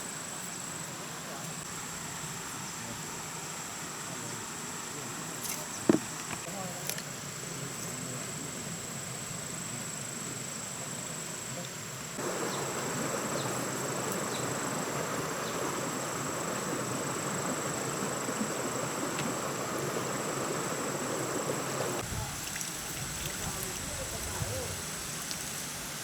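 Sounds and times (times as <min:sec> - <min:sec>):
insect drone: 0:00.0 - 0:26.0
rushing noise: 0:12.2 - 0:22.0.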